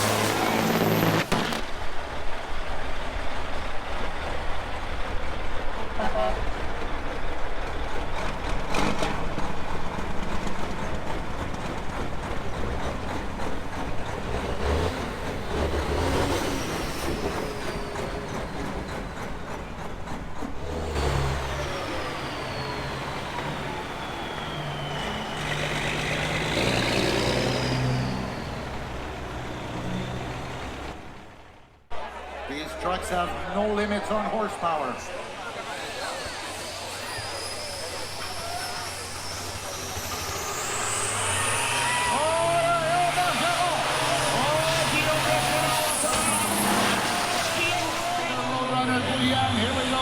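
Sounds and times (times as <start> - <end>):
diesel truck engines running: 0.0 - 50.0
high falling whistles: 14.5 - 20.1, 20.8 - 30.8, 33.9 - 50.0.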